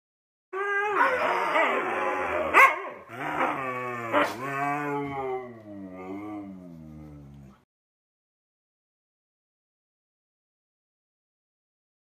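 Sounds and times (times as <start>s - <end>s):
huskies howling: 0.6s - 6.4s.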